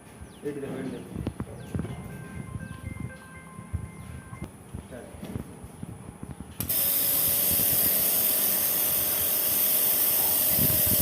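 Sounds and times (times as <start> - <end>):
vacuum pump running with airy hiss: 6.6 - 11.0.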